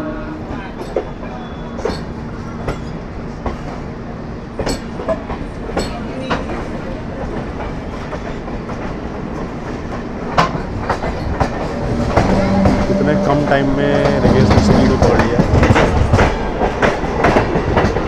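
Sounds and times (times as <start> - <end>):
electric train rumbling: 0.0 - 18.0
wheel clacks over rail joints: 4.6 - 13.3, 13.9 - 18.0.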